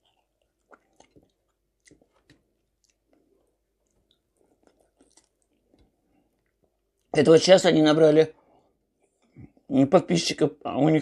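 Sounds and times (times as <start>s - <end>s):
faint chewing mouth smacks: 0.0s - 7.1s.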